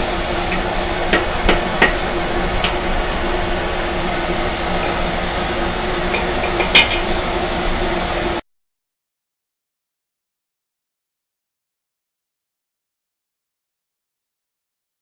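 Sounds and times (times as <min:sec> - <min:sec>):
steady hum: 0:00.0 - 0:08.4.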